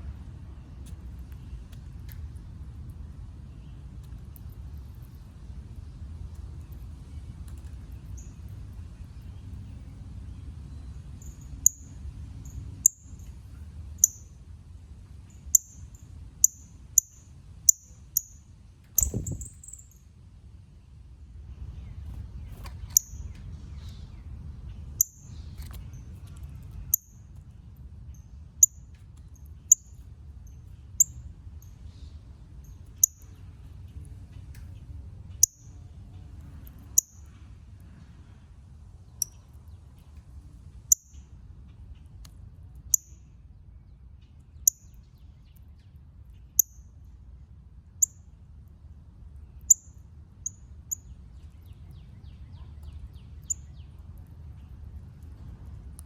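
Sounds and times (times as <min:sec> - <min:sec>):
steady low rumble: 0:18.8 - 0:42.8.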